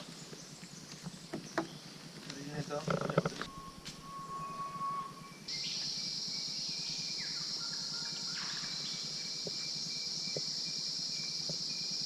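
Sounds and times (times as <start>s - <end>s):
insects droning: 0.0s - 12.0s
faint falling whistles: 3.4s - 6.0s
short steady tone: 3.5s - 5.5s.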